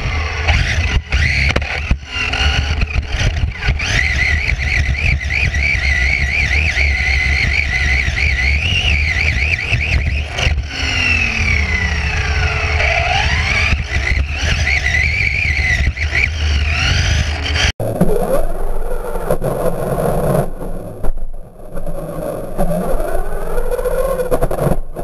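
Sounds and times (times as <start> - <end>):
electric toy car motor whining: 0.0 - 17.7.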